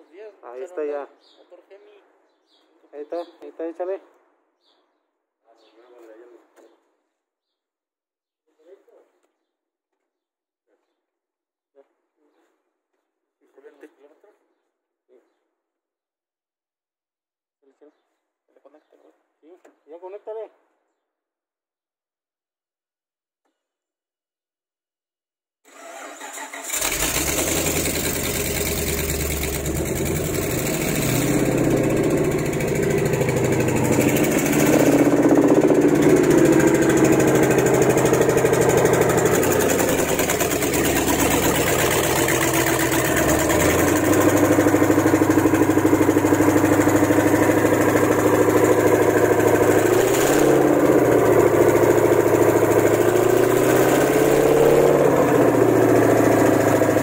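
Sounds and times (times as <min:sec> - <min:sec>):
car engine starting and idling: 0:25.7 - 0:57.0.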